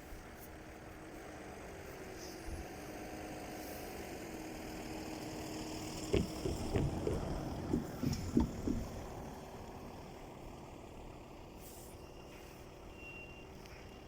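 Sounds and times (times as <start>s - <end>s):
train running on rails: 4.6s - 14.0s
wheels clacking over rail joints: 5.3s - 10.1s.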